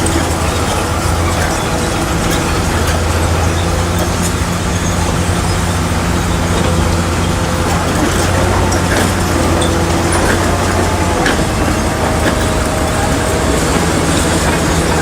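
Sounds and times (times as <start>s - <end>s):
heavy diesel engine running: 0.0s - 15.0s
scattered clicks and clanks: 0.0s - 15.0s.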